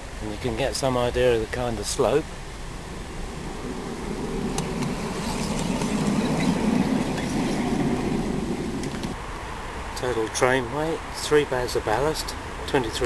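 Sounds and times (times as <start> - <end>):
simulated diesel engine sound: 2.1 - 9.2
train running gear on rails: 3.4 - 9.2.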